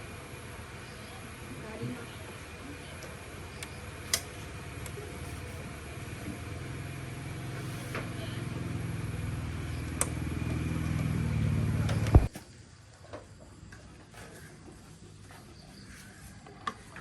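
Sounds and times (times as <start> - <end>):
motor humming: 0.0 - 12.3.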